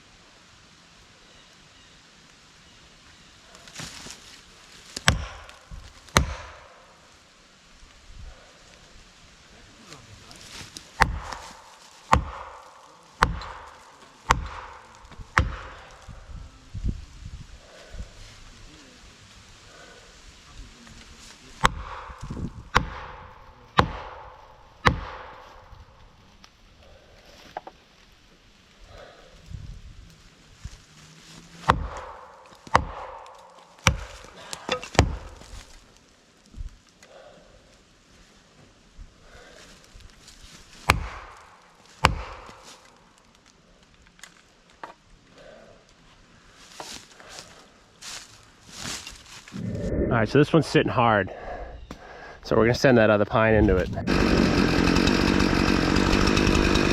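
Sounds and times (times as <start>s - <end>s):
hammer pounding wedge: 5.0s - 5.5s, 6.1s - 6.7s, 11.0s - 16.0s, 21.6s - 25.4s, 31.6s - 35.4s, 40.9s - 41.4s, 42.0s - 42.6s, 54.1s - 56.9s.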